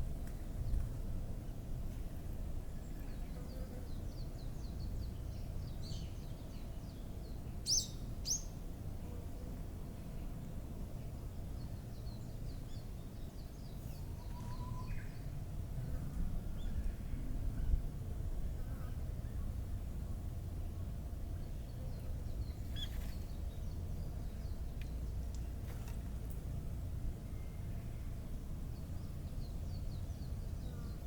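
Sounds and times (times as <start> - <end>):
low background rumble: 0.0 - 31.0
small birds chirping: 21.4 - 25.6.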